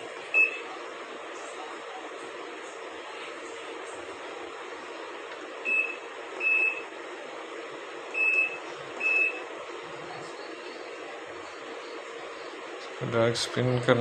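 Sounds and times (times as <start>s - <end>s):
washing machine panel beeps: 0.3s - 0.7s, 5.6s - 6.9s, 8.1s - 9.5s.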